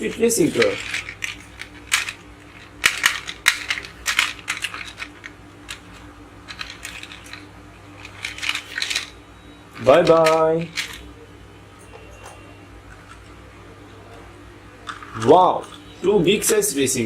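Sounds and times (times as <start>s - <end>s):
toy cars clicking on hard surface: 0.1s - 5.8s, 8.0s - 9.1s, 9.8s - 11.0s.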